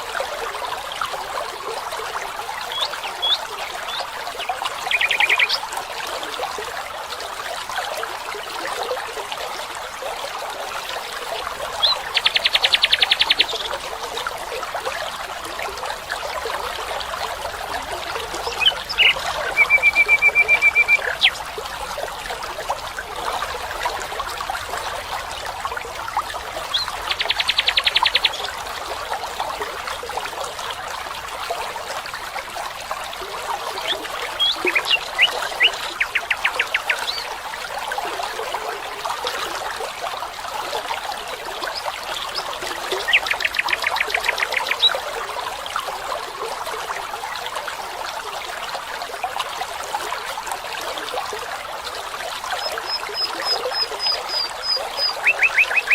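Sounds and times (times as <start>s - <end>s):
stream trickling: 0.0s - 55.9s
songbirds chirping: 2.6s - 5.7s, 17.8s - 21.4s
songbird trilling: 4.9s - 5.6s, 18.5s - 21.4s, 52.9s - 55.9s.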